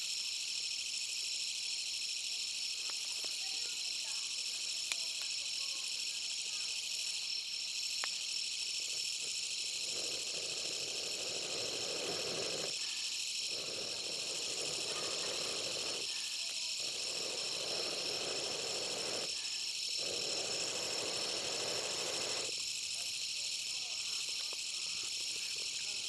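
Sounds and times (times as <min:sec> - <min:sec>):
insects chorus: 0:00.0 - 0:26.0
rushing hiss: 0:09.8 - 0:22.6.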